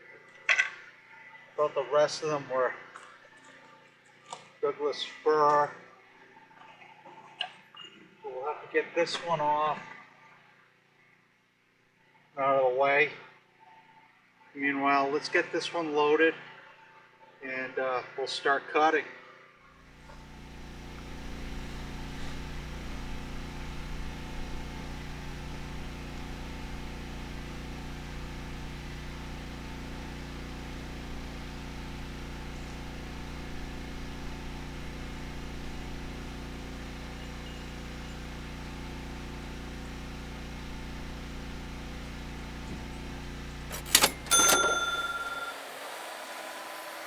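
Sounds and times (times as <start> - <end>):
skid steer engine running: 19.9 - 47.0.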